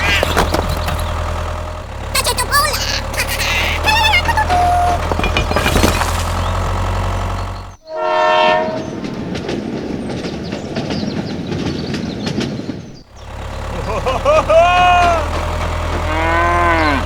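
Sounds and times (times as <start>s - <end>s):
steady rumbling: 0.0s - 7.8s
short horn blast: 7.9s - 9.0s.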